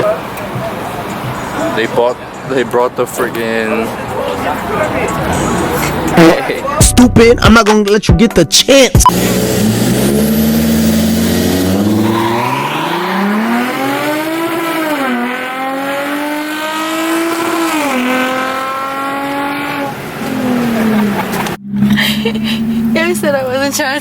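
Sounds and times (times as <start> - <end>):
car engine accelerating: 9.1 - 24.0.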